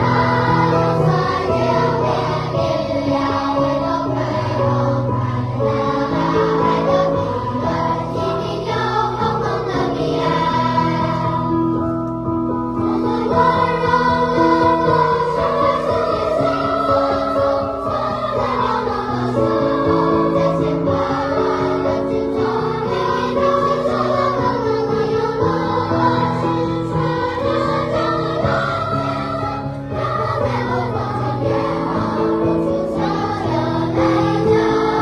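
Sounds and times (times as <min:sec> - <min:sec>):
children's choir singing: 0:00.0 - 0:35.0.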